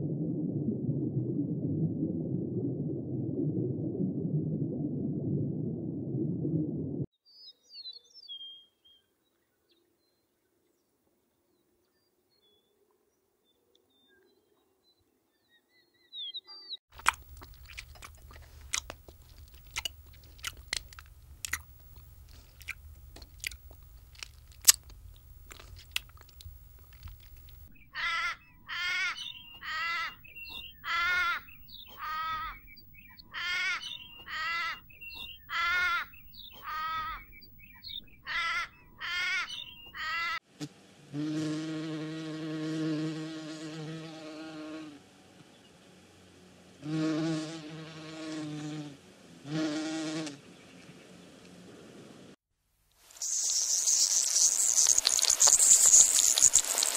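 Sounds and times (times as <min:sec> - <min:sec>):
low hum: 0:00.0 - 0:07.1, 0:17.0 - 0:27.9
sharp clicks and crackles: 0:16.9 - 0:27.7, 0:53.1 - 0:56.9
wavering animal calls: 0:27.8 - 0:40.4
hoverfly wings buzzing: 0:40.6 - 0:45.0, 0:53.1 - 0:56.9.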